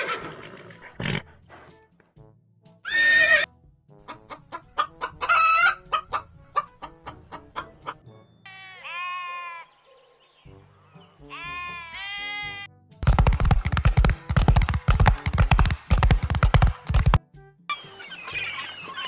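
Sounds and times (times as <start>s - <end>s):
quiet background music: 0.5s - 19.0s
goats bleating: 8.5s - 9.7s, 11.3s - 12.7s
horses galloping: 13.0s - 17.2s.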